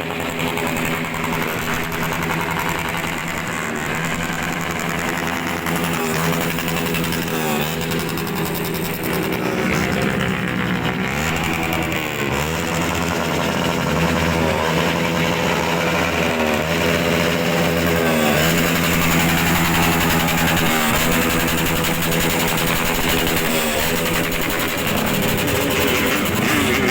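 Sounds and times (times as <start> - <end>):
motorcycle engines revving: 0.0 - 26.9.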